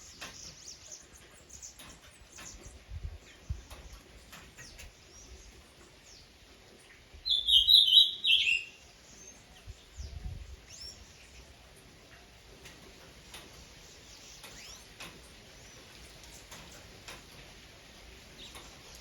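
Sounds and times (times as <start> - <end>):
faint bird chirps: 6.9 - 11.5
bird chattering call: 7.3 - 8.8.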